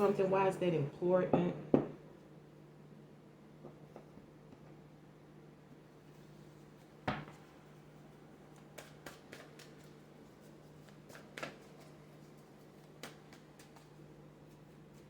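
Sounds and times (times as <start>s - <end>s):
tap on a table: 1.3s - 2.0s.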